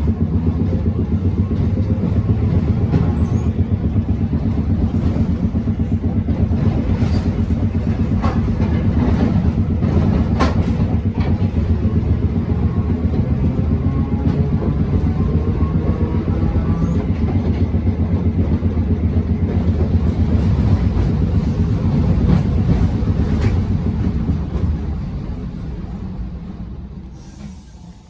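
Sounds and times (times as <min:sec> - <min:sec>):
tram running gear hum: 0:00.0 - 0:28.0
wheels clicking over rail joints: 0:01.1 - 0:15.0.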